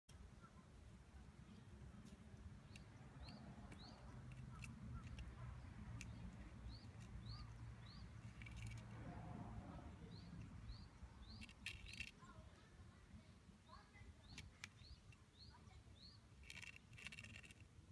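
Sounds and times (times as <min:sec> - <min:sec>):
soft clicks: 0:01.5 - 0:09.0
faint bird chirps: 0:02.4 - 0:17.6.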